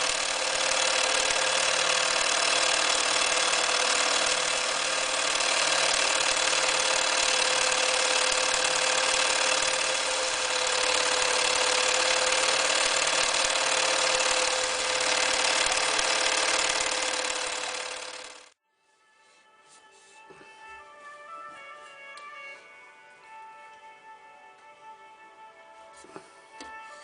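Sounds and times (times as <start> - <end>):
sewing machine running: 0.0 - 18.6.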